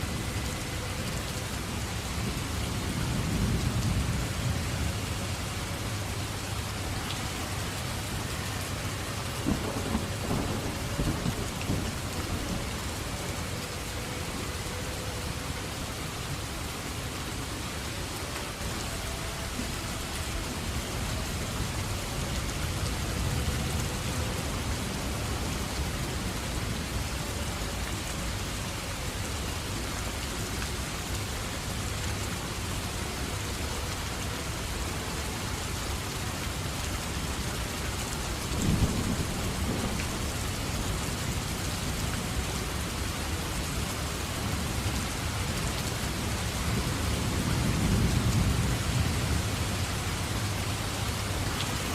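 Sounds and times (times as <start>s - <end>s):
heavy rain: 0.0s - 51.9s
rolling thunder: 9.4s - 12.8s.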